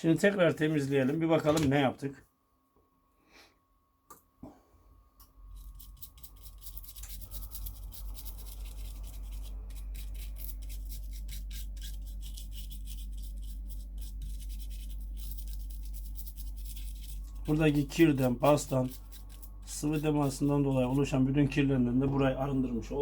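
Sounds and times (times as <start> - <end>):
low hum: 2.4 - 23.0
brush scrubbing circuit board: 5.5 - 21.2.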